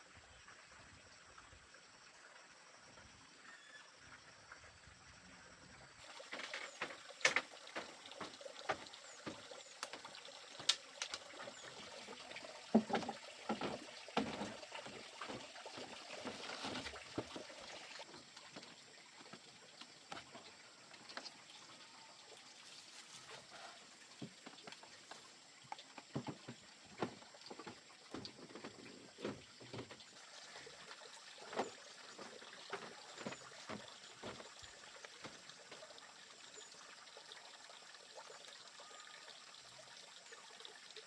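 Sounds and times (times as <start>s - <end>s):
water splashing and trickling: 5.9s - 41.0s.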